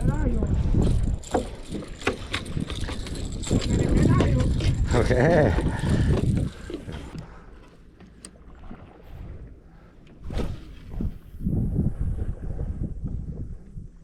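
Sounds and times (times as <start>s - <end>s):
knocks and bumps on a boat: 1.2s - 7.2s.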